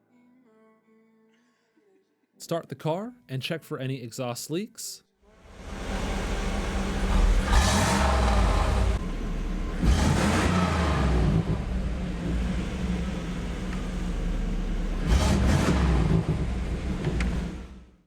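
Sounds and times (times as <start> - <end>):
car engine idling: 5.3 - 18.0
engine throttle blips: 5.4 - 18.0.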